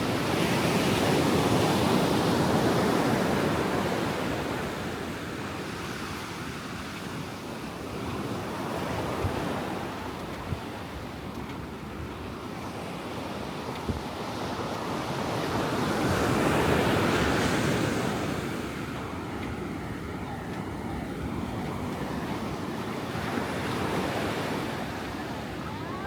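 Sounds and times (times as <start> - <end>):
ocean waves breaking on a beach: 0.0 - 26.0
wind on the microphone: 5.4 - 26.0.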